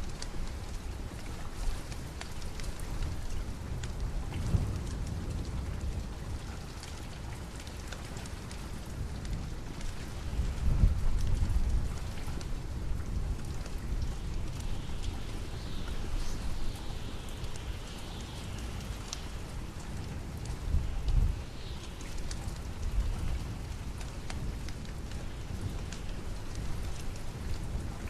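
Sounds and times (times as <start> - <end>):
steady rain: 0.0 - 28.0
low rolls of thunder: 4.0 - 6.9.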